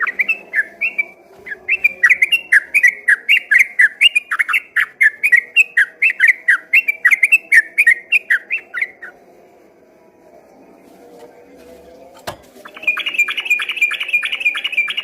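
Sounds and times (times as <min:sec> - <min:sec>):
bird singing rapid whistled notes: 0:00.0 - 0:09.1, 0:12.6 - 0:15.0.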